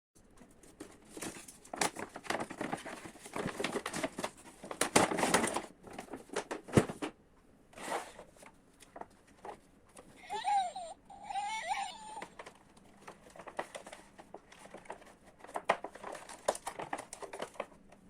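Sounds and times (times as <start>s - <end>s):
plastic packaging crinkling: 0.8s - 6.8s, 11.3s - 18.0s.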